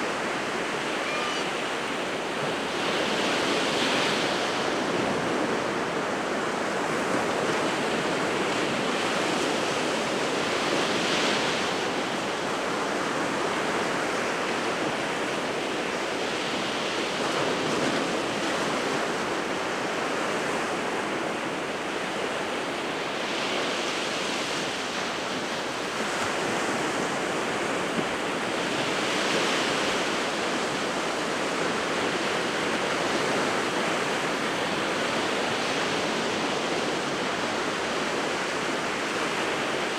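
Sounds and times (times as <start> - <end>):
sea surf breaking on shore: 0.0 - 39.9.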